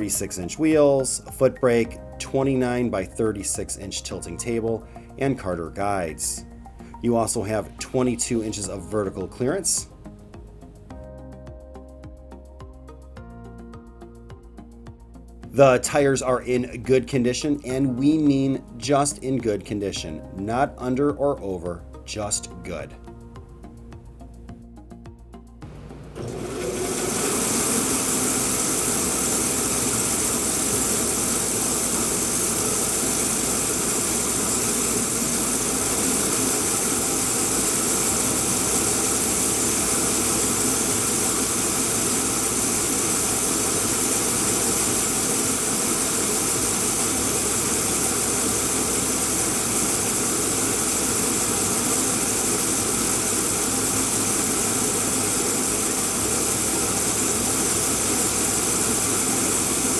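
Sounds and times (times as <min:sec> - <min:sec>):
bandsaw motor whirring: 0:25.6 - 0:59.9.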